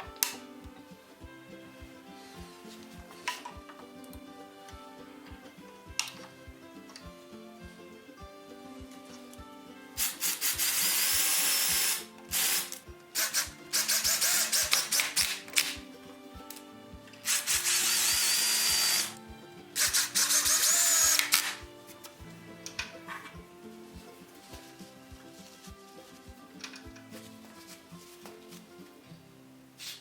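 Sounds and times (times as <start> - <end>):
background music with beat: 0.0 - 30.0
power drill whine: 10.0 - 15.3, 17.2 - 19.2, 19.8 - 21.6.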